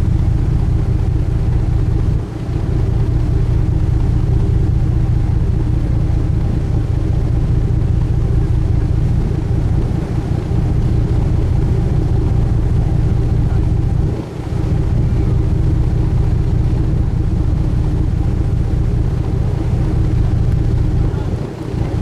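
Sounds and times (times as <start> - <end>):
ship engine low hum: 0.0 - 22.0.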